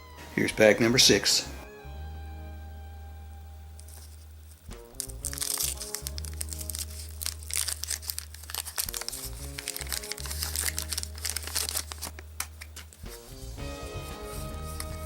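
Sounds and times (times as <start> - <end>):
background music with bass line: 0.0 - 7.2, 12.3 - 15.0
paper wrapper crinkling and tearing: 3.8 - 13.2.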